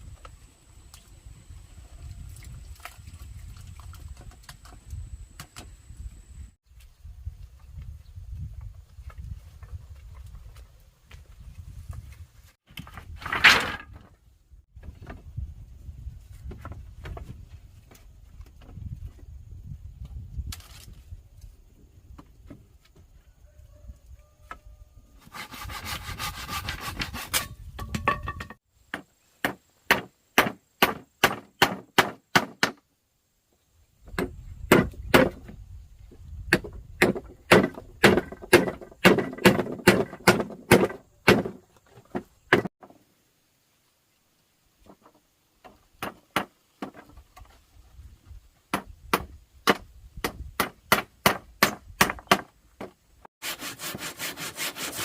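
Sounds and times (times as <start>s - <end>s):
rubbing or scraping: 25.2s - 27.6s, 53.4s - 55.0s
chopping blows on wood: 28.9s - 32.8s, 48.7s - 53.0s.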